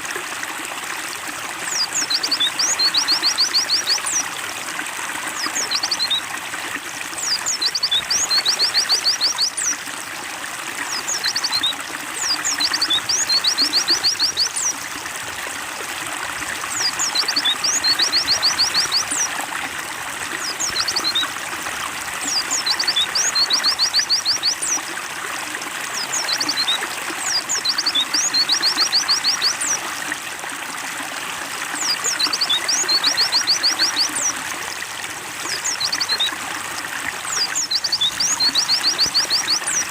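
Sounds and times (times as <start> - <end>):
trickling water: 0.0 - 39.9
small bird singing: 1.7 - 4.2, 5.4 - 6.2, 7.2 - 9.8, 10.9 - 14.8, 16.7 - 19.3, 20.4 - 21.3, 22.2 - 24.8, 26.0 - 29.8, 31.8 - 34.4, 37.3 - 39.9.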